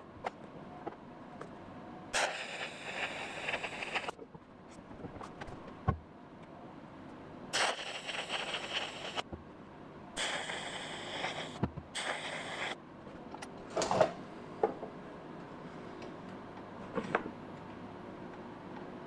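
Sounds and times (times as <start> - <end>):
welding arc hissing: 2.2 - 4.2, 7.6 - 9.3, 10.2 - 12.8.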